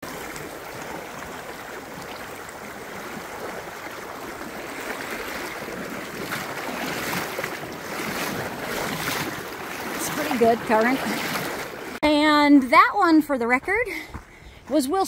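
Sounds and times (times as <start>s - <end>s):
creek rushing: 0.0s - 12.0s
splashing from wading: 0.0s - 12.0s.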